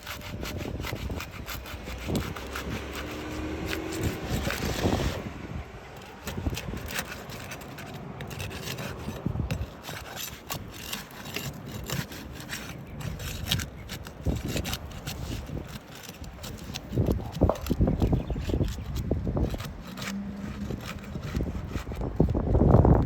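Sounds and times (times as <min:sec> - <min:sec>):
scraping on roof shingles: 0:00.0 - 0:23.0.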